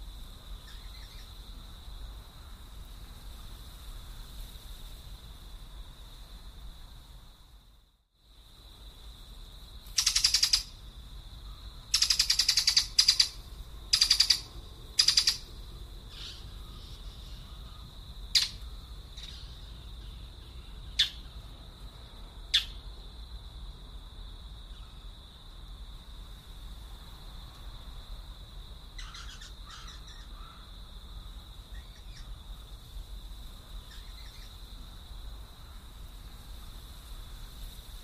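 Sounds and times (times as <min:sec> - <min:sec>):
sharp down-slurred bird chirps: 0:00.6 - 0:01.4, 0:10.0 - 0:10.8, 0:11.5 - 0:15.5, 0:16.1 - 0:21.4, 0:22.5 - 0:22.8, 0:29.0 - 0:30.6, 0:33.8 - 0:34.6
bird rattling bursts: 0:09.9 - 0:10.7, 0:11.9 - 0:15.4.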